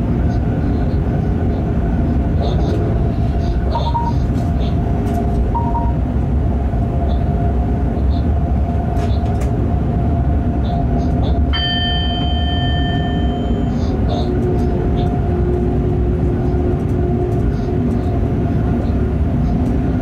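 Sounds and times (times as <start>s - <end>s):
constant whine: 0.0s - 20.0s
train running low rumble: 0.0s - 20.0s
high steady multi-pitch tone: 5.6s - 6.0s.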